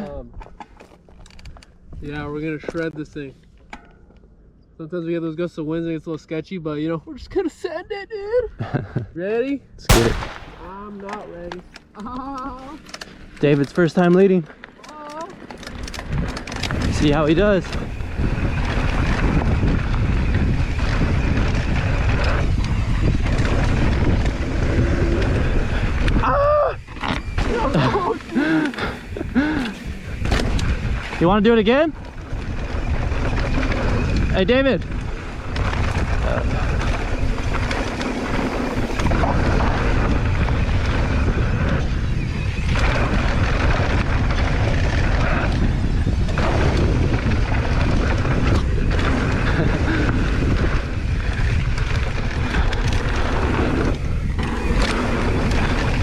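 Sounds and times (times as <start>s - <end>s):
tyres rumbling on dirt trail: 9.9s - 11.5s, 12.2s - 56.0s
wind rushing over microphone: 9.9s - 11.6s, 15.9s - 56.0s.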